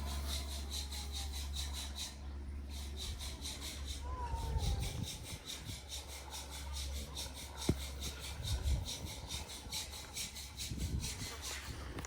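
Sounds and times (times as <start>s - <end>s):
handsaw cutting wood: 4.9s - 12.0s.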